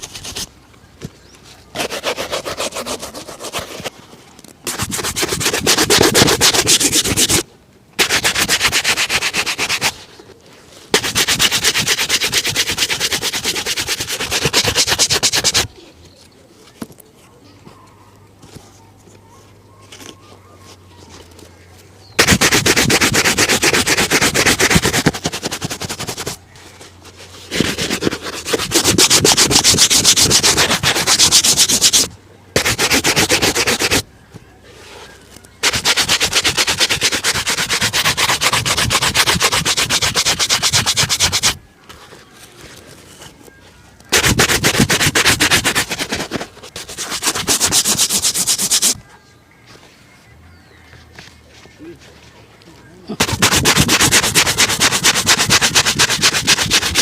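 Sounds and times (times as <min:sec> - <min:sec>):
brush scrubbing a shoe: 0:00.0 - 0:00.5, 0:01.7 - 0:03.9, 0:04.7 - 0:07.4, 0:08.0 - 0:10.1, 0:10.9 - 0:15.7, 0:22.2 - 0:26.4, 0:27.0 - 0:34.0, 0:35.6 - 0:41.6, 0:44.1 - 0:49.0, 0:53.2 - 0:57.0.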